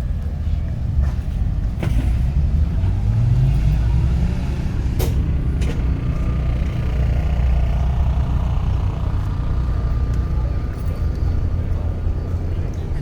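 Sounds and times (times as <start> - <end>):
car engine running: 4.7 - 12.8.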